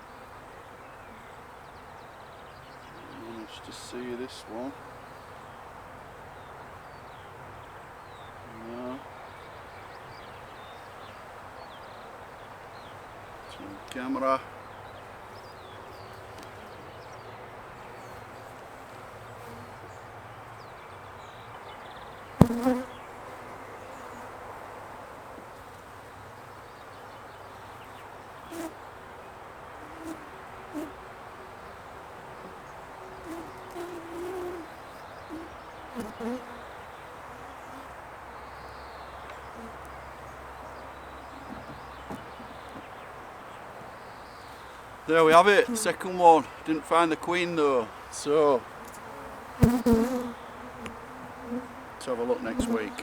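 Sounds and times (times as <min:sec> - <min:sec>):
small birds chirping: 0:00.0 - 0:53.0
honeybees buzzing: 0:21.9 - 0:26.4, 0:27.5 - 0:28.9, 0:29.6 - 0:53.0
bee passing close buzz: 0:22.3 - 0:24.4, 0:29.8 - 0:31.0, 0:32.4 - 0:38.0, 0:44.4 - 0:46.1, 0:47.8 - 0:53.0.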